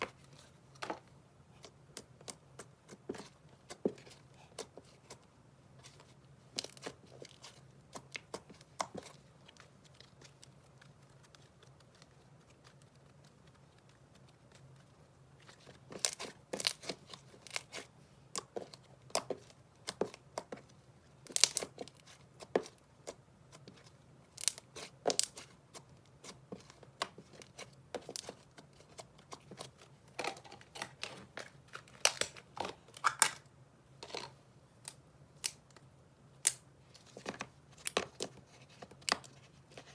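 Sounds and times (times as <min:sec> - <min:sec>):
slime popping and crackling: 0:21.3 - 0:22.0.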